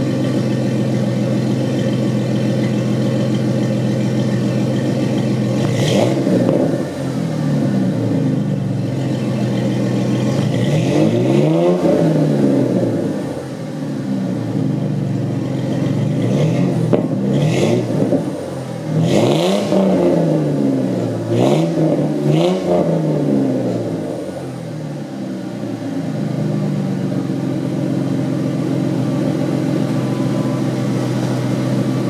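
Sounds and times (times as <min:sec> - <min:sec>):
car engine idling and revving: 0:00.0 - 0:32.0.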